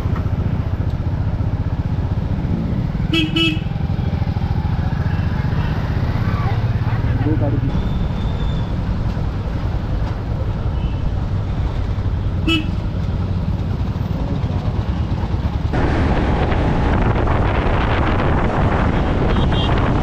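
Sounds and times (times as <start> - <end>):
road and wind rumble: 0.0 - 20.0
vehicle horn toot: 3.1 - 3.7, 12.4 - 12.8, 19.2 - 19.8
wind rushing on microphone: 14.7 - 20.0.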